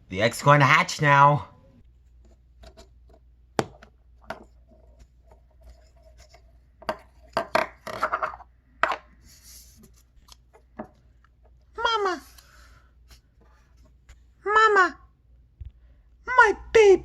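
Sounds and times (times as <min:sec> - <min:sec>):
toy rubbing and scraping: 0:04.3 - 0:10.6.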